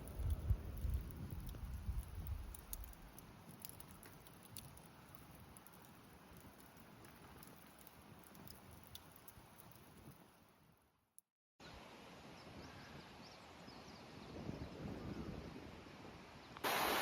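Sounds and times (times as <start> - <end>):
faint small clicks and pops: 0.0 - 10.3.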